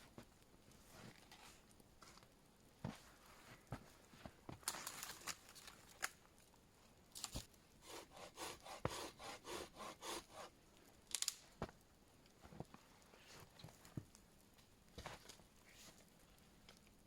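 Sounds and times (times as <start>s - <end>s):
hand saw cutting wood: 7.8s - 10.5s.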